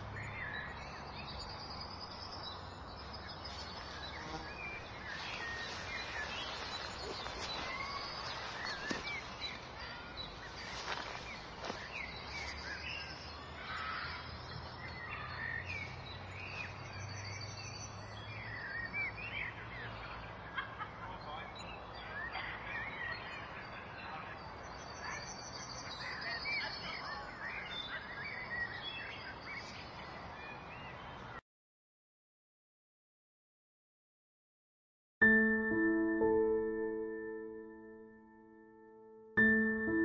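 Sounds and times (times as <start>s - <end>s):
small birds chirping: 0.0s - 31.4s.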